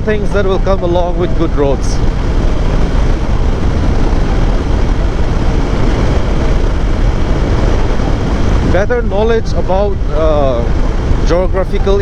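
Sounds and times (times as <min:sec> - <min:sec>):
motorcycle engine running: 0:00.0 - 0:12.0
road noise: 0:00.0 - 0:12.0
wind noise: 0:00.0 - 0:12.0.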